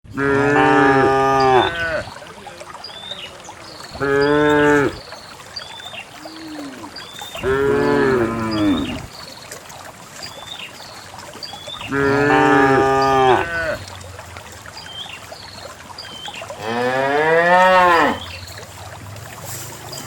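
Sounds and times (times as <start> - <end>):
cows mooing: 0.1 - 2.1, 4.0 - 5.0, 6.2 - 9.1, 11.9 - 13.8, 16.6 - 18.3.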